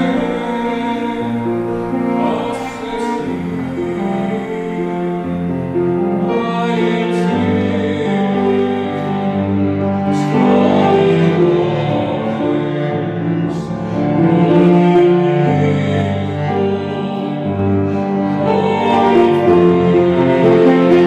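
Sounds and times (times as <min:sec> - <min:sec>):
cello: 0:00.0 - 0:21.0
piano: 0:00.0 - 0:21.0
vocal ensemble singing: 0:00.0 - 0:21.0.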